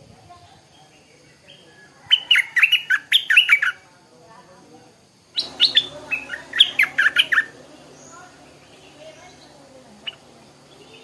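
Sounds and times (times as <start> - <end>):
bird singing rapid descending notes: 5.4 - 11.0.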